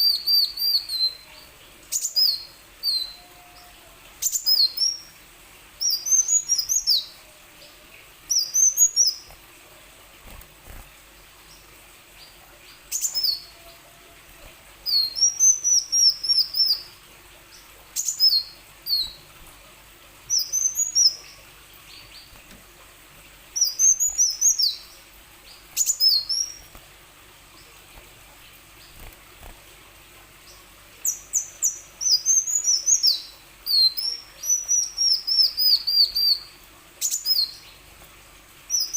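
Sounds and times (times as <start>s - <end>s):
sunbird singing high chirps: 0.0s - 5.1s, 5.8s - 9.4s, 12.2s - 13.8s, 14.8s - 16.9s, 18.0s - 19.2s, 20.3s - 22.4s, 23.6s - 26.7s, 30.5s - 37.8s.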